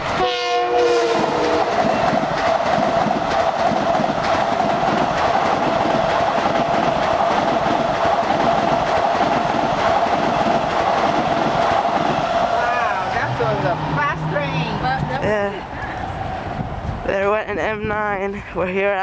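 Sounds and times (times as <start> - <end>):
train horn chord: 0.0 - 2.0, 13.4 - 15.3
electric train passing: 0.0 - 17.4.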